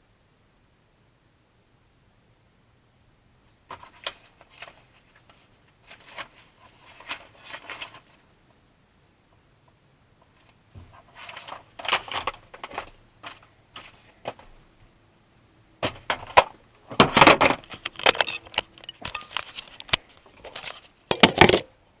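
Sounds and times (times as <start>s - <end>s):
jangling and clattering: 17.1s - 21.6s.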